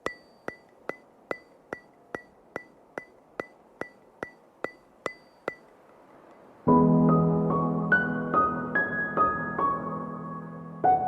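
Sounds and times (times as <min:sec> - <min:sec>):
sharp ticking clicks: 0:00.0 - 0:06.5.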